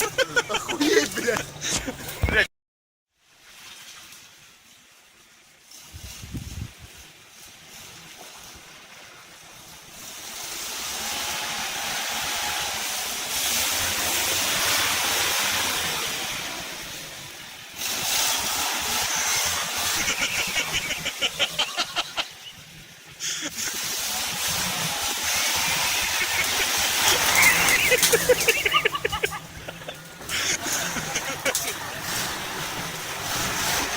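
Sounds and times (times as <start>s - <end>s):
vehicle splashing through mud: 0.0s - 2.5s, 5.6s - 33.9s
slapping pulses: 24.5s - 33.9s.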